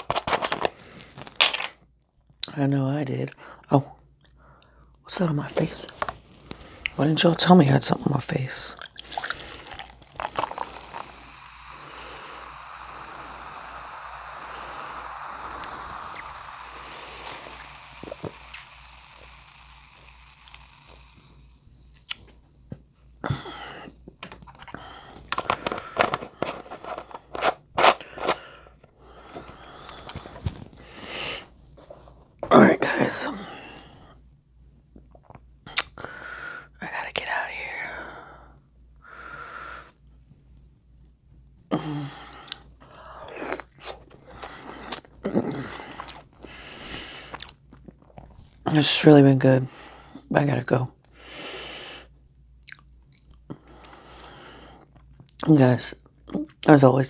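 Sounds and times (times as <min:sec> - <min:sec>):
crinkling and rustling: 0:00.0 - 0:01.8
sharp clicks and scrapes: 0:00.0 - 0:01.8
person speaking with full mouth: 0:02.4 - 0:21.4, 0:24.7 - 0:34.2, 0:36.7 - 0:38.4, 0:41.7 - 0:51.0, 0:55.3 - 0:57.0
wet mouth clicks: 0:08.8 - 0:11.8, 0:13.0 - 0:19.1, 0:22.0 - 0:22.3, 0:35.0 - 0:36.0, 0:52.6 - 0:53.4
chewing and crunching food: 0:52.6 - 0:53.4.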